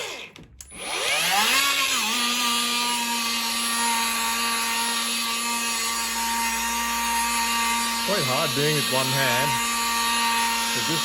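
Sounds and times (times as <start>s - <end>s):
polisher motor whining: 0.0s - 11.0s.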